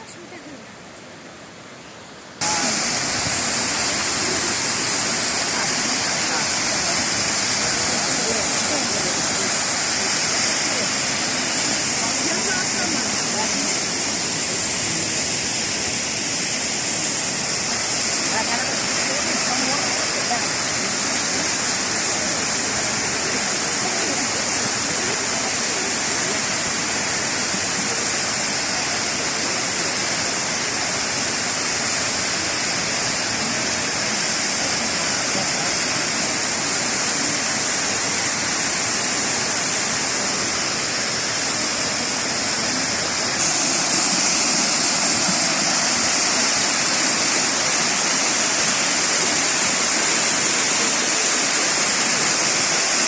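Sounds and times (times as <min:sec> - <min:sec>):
waterfall rushing: 0:01.7 - 0:53.0.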